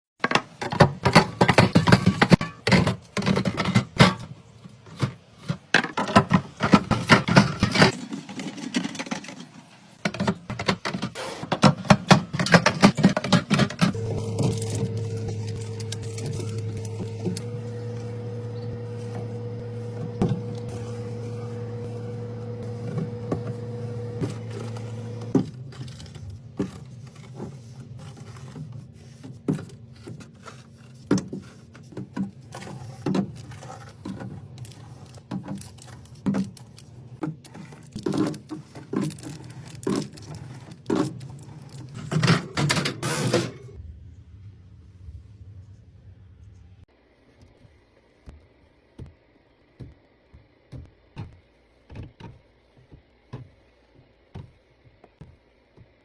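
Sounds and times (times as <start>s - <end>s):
steady low hum: 13.8s - 26.8s.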